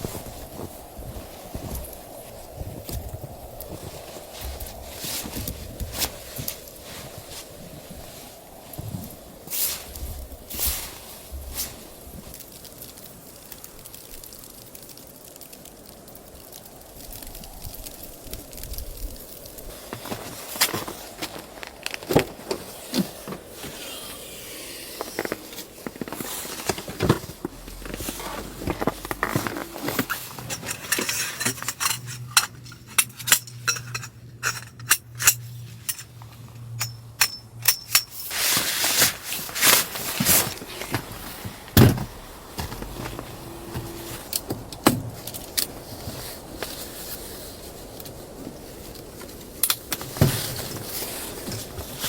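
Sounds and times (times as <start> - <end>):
objects knocking and clinking: 28.8 - 36.1, 36.7 - 38.4.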